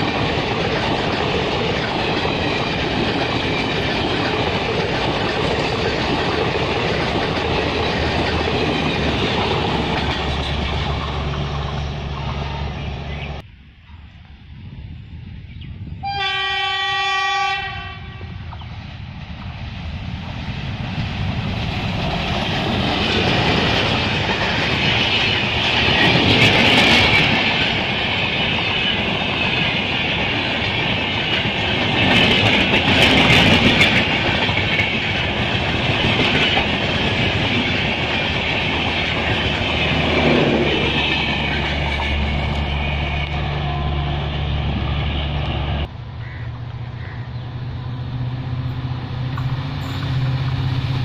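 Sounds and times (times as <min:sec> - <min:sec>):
train wheels on rails: 0:00.0 - 0:13.5, 0:15.8 - 0:51.0
locomotive low hum: 0:32.3 - 0:51.0.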